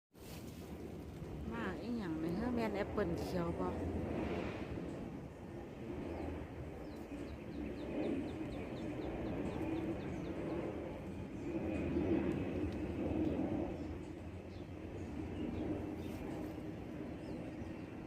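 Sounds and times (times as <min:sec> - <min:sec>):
birds chirping: 0:06.0 - 0:12.5.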